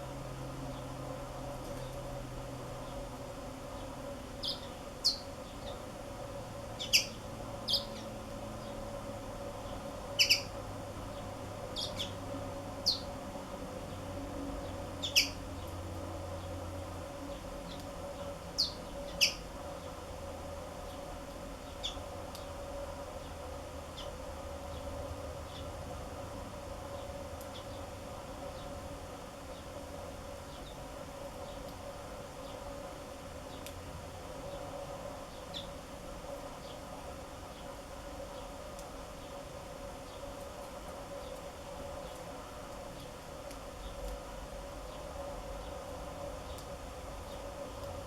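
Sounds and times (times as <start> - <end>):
steady low hum: 0.0 - 48.0
canaries chirping: 6.8 - 8.1, 10.2 - 10.5, 11.8 - 12.2, 15.0 - 15.4.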